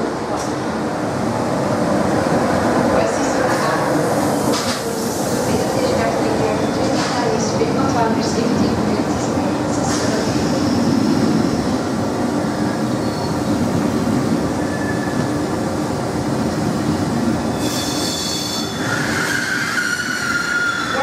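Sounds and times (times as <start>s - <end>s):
train rumbling on rails: 0.0s - 21.0s
high-pitched wheel squeal: 17.5s - 21.0s.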